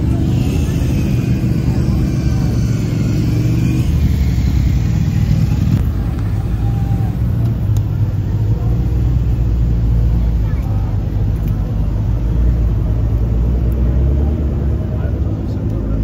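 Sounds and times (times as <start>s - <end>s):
sports car engines rolling past: 0.0s - 16.0s.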